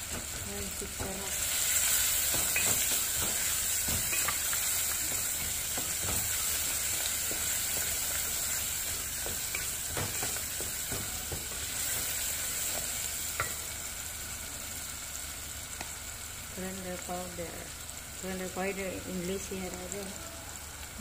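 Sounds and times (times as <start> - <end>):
spatula knocking and scraping pot: 0.0 - 13.6
onion sizzling in hot oil: 0.0 - 21.0.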